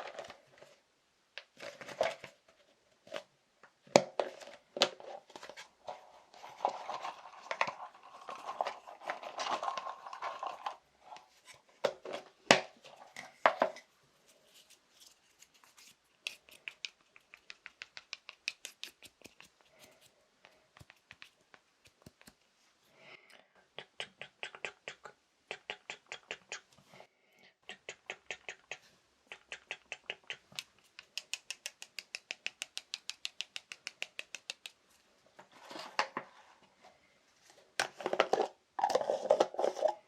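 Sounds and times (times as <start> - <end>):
scratches: 4.3 - 12.2, 12.8 - 20.2
tapping on small objects: 16.2 - 19.9, 30.3 - 34.8.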